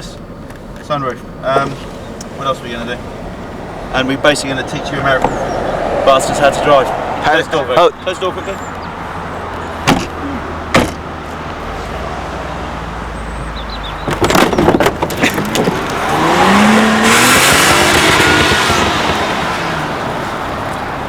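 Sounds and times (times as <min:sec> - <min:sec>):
car engine running: 0:00.0 - 0:21.0
car door slams: 0:01.5 - 0:06.3, 0:09.8 - 0:11.2
loud rush of noise: 0:02.3 - 0:08.1
knocks: 0:09.8 - 0:11.1.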